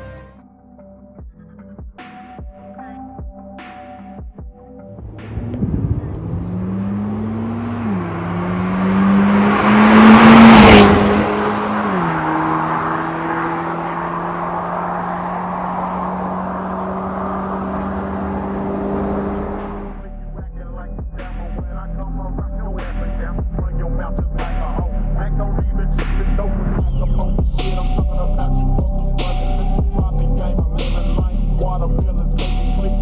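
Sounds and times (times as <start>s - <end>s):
car engine revving: 5.0s - 20.2s.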